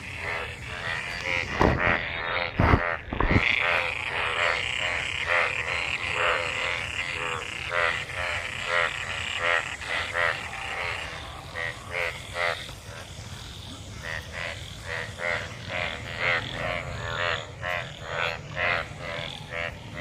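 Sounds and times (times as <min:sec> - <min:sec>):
frogs croaking: 0:00.0 - 0:20.0
low thumps: 0:01.3 - 0:03.6.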